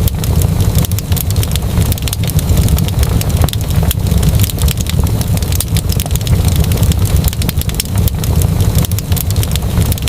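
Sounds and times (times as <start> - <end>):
steady low rumble: 0.0 - 10.0
wood fire crackling: 0.0 - 10.0.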